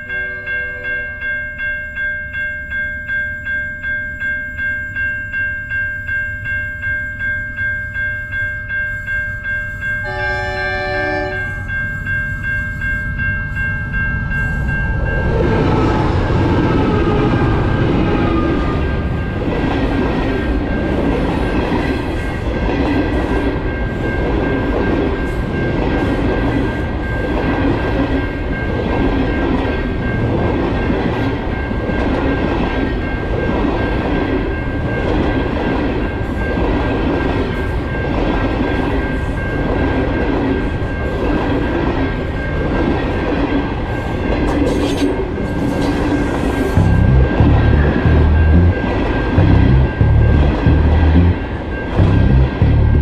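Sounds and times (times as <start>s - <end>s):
high-pitched ringing: 0.0s - 19.5s, 45.1s - 53.0s
train carriages rumbling past: 9.8s - 53.0s
train horn: 10.0s - 11.7s.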